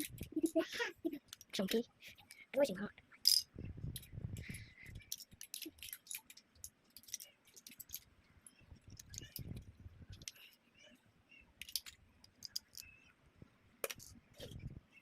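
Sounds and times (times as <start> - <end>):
plastic bricks clicking: 5.1 - 8.0, 11.6 - 12.9, 13.8 - 14.2.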